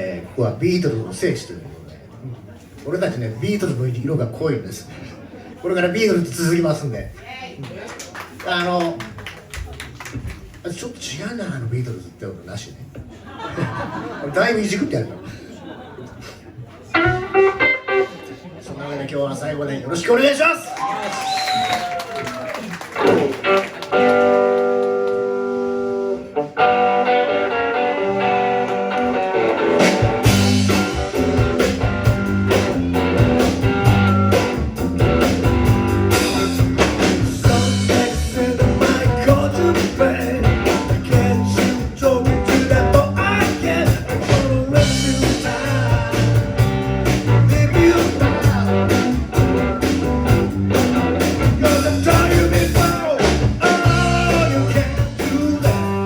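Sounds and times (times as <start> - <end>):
drums: 8.2 - 11.1, 16.2 - 18.8, 20.8 - 56.0
rock band playing: 16.8 - 18.6, 22.8 - 56.0
bass guitar: 16.9 - 18.3, 22.9 - 56.0
electric guitar chord ringing: 16.9 - 18.3, 23.4 - 36.8.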